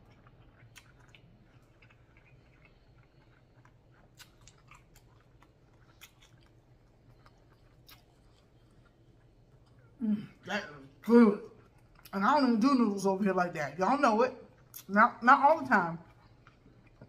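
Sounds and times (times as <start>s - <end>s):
soft chewing with mouth clicks: 0.0s - 13.0s, 13.7s - 17.0s.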